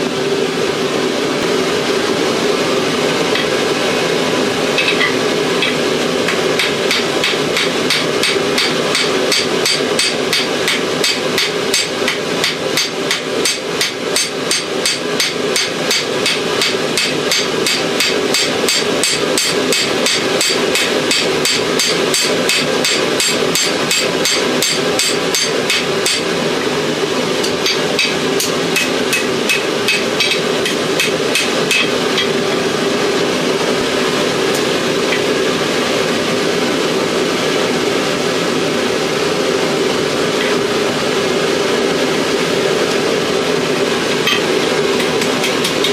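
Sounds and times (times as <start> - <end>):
steady hum: 0.0 - 45.9
hammer striking hot steel on anvil: 4.8 - 26.3, 27.4 - 32.5, 44.2 - 45.9.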